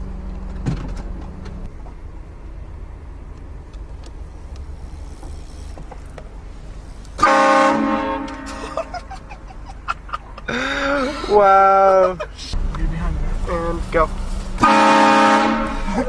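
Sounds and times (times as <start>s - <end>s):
car engine rumbling: 0.0s - 16.0s
buzzy prank car horn blast: 7.2s - 9.0s, 14.6s - 15.9s.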